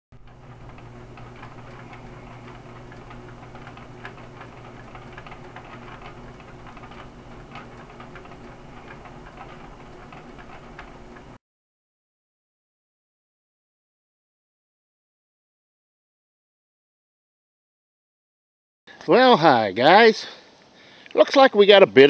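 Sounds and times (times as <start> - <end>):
fast irregular ticking: 0.2 - 11.4.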